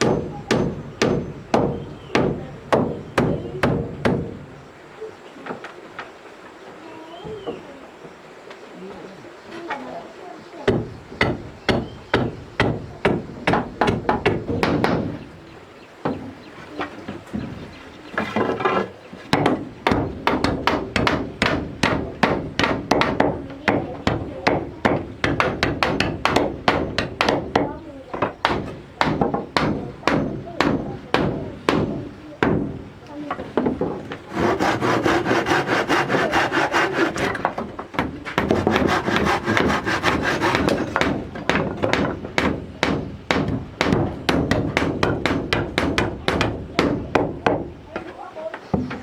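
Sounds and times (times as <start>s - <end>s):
tool striking wood: 0.0s - 4.4s, 10.7s - 15.2s, 18.2s - 48.1s.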